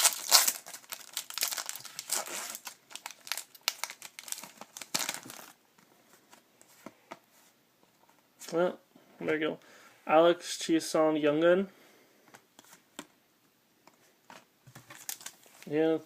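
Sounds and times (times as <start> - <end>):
foil wrapper crinkling and tearing: 0.0 - 5.6, 15.0 - 15.6.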